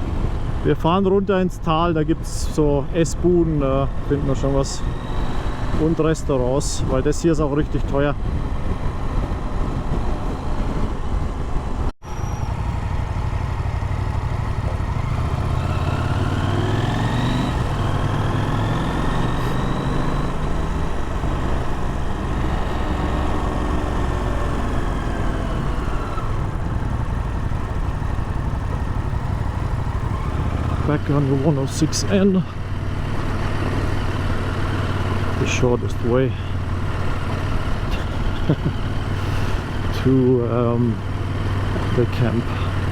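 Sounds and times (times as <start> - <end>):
motorcycle engine running: 8.2 - 42.9.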